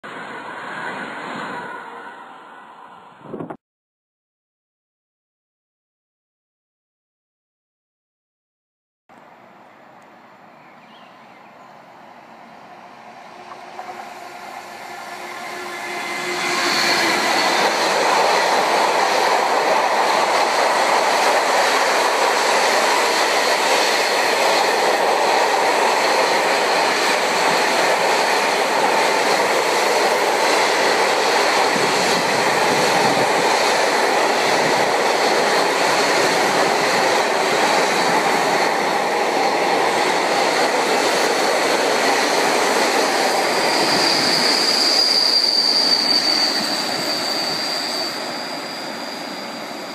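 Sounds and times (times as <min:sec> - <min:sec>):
high wheel squeal: 0:13.4 - 0:18.0, 0:42.9 - 0:49.9.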